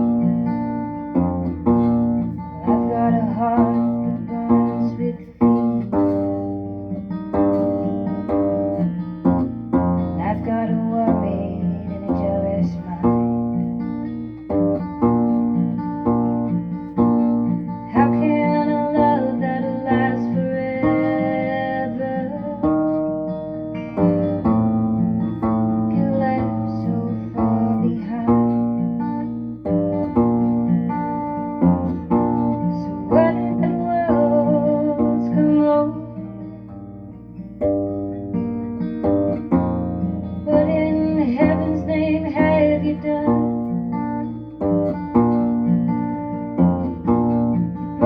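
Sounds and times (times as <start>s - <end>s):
plucked acoustic strings: 0.0s - 48.0s
person singing a ballad: 2.3s - 6.2s, 10.0s - 13.8s, 17.7s - 24.4s, 25.7s - 29.0s, 32.4s - 36.7s, 40.3s - 43.8s.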